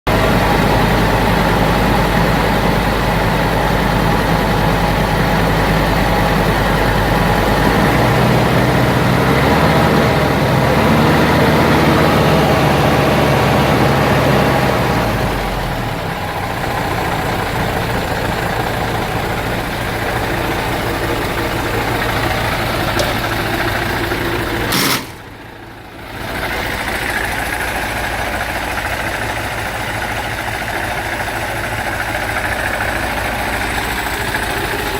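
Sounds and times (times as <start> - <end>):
truck diesel engine idling: 0.1 - 34.9.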